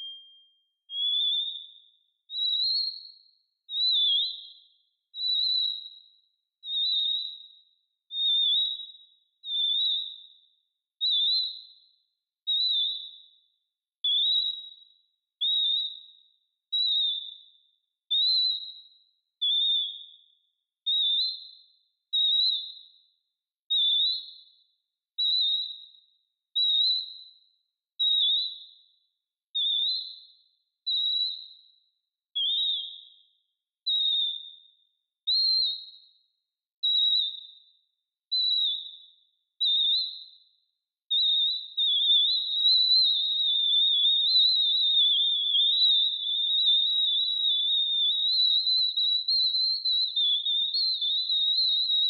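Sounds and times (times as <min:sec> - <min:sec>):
synthesized bird-like chirps: 0:00.0 - 0:00.3.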